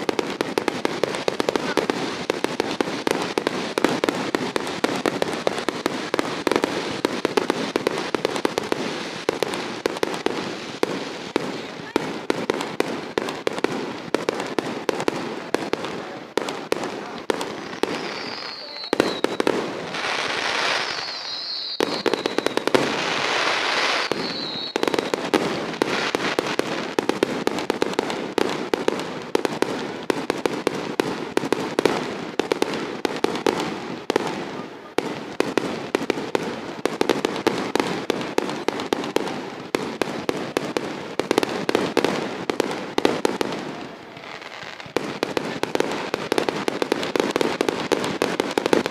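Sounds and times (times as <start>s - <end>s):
firecrackers cracking and banging: 0.0s - 48.9s
firework hissing with falling whistle: 17.6s - 26.2s.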